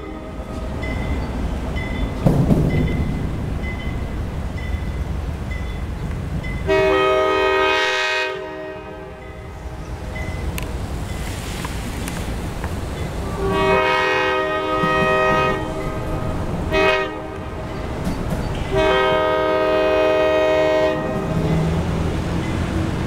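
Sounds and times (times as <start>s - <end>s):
locomotive air horn blasts: 0.0s - 0.7s, 6.6s - 9.8s, 13.2s - 17.7s, 18.7s - 21.4s.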